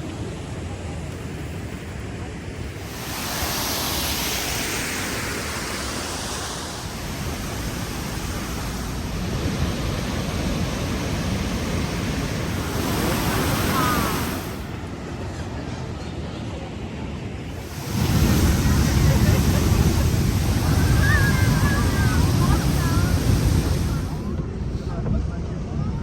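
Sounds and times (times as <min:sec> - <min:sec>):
waterfall rushing: 0:02.7 - 0:14.8, 0:17.5 - 0:24.4
faint voices: 0:06.9 - 0:26.0.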